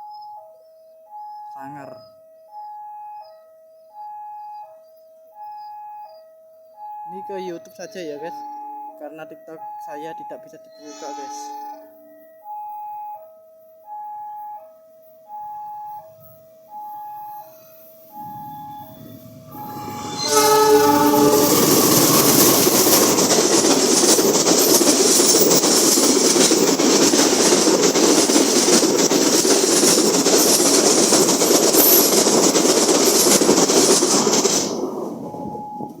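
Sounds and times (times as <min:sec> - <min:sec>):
train passing at speed: 0:17.1 - 0:36.0
locomotive horn blast: 0:18.1 - 0:24.7.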